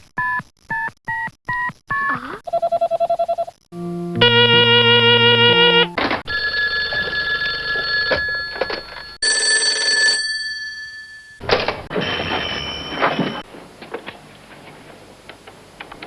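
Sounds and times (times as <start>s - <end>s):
electronic buzzing phone ring: 3.8s - 11.4s
telephone ringing tone: 4.2s - 13.4s
bell-like phone ring: 4.2s - 13.5s.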